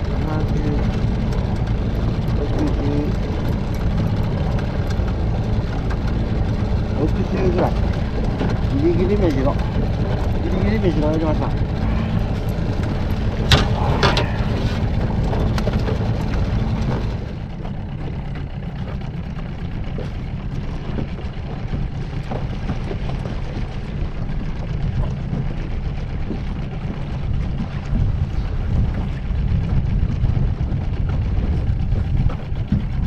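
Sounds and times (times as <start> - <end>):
boat engine rumble: 0.0 - 33.0
sharp knocks: 13.4 - 14.8.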